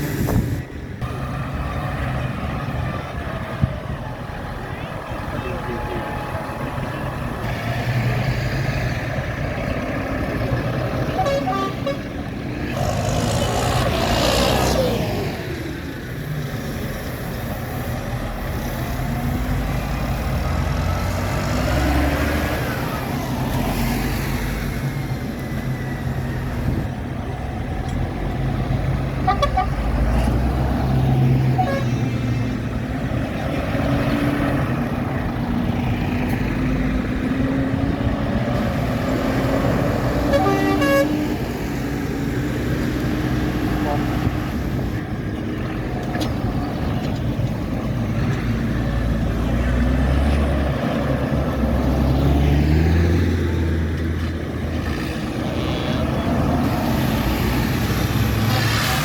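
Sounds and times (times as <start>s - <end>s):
tractor engines running: 0.0s - 59.0s
vehicle horn tooting: 11.1s - 12.1s, 31.5s - 32.0s, 40.2s - 41.3s.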